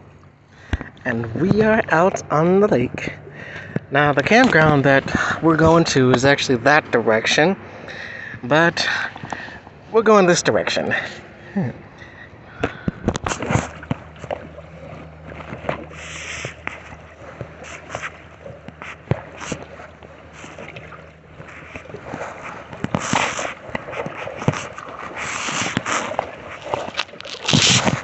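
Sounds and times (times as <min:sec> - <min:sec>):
kayak paddle splashing in water: 0:10.6 - 0:28.0
paddle knocking against kayak: 0:12.6 - 0:28.0.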